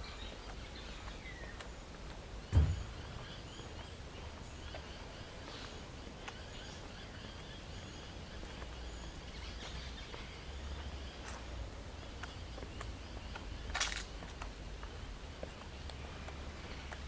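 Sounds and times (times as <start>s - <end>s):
birds chirping: 0.0s - 17.0s
loud low thump: 2.4s - 3.2s.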